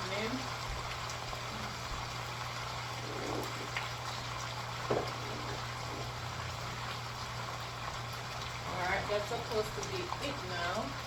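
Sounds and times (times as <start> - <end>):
food bubbling in a pot: 0.0 - 11.0
soft knock: 4.9 - 5.2.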